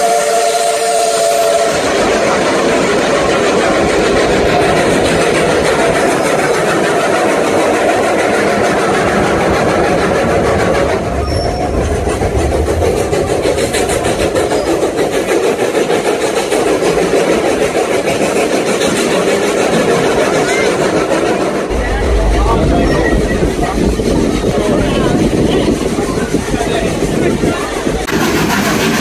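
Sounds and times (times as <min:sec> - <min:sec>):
steam train rumble and rattle: 0:00.0 - 0:29.0
low rumble: 0:10.9 - 0:14.5, 0:21.6 - 0:28.0
regular pulsing: 0:21.6 - 0:26.6.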